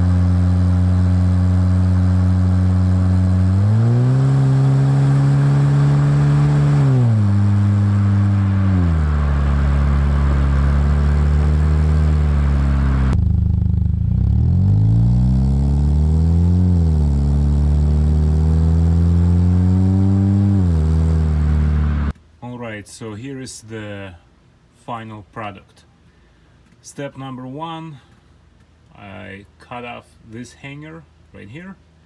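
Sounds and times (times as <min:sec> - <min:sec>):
car engine revving and idling: 0:00.0 - 0:22.2.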